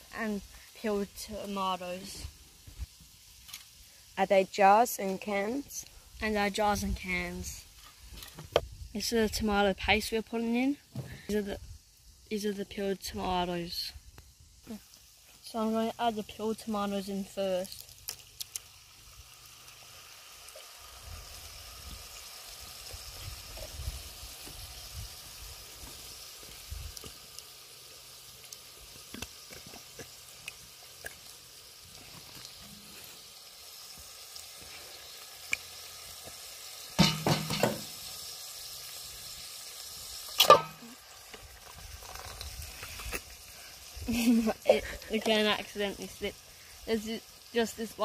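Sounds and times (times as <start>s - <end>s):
mince sizzling in a pot: 0.0s - 48.0s
tomatoes pouring into a pot: 17.6s - 45.5s
tin can knocking on pot: 37.0s - 38.0s.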